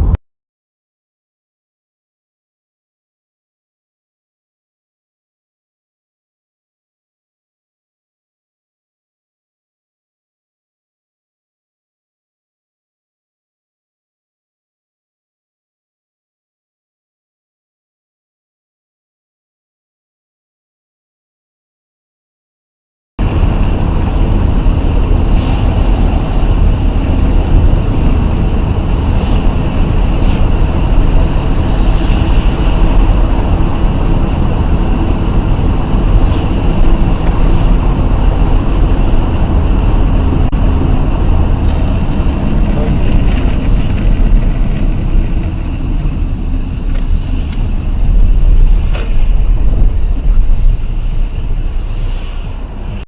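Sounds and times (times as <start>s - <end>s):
vehicle engine and road noise: 0.0s - 0.2s, 23.2s - 53.0s.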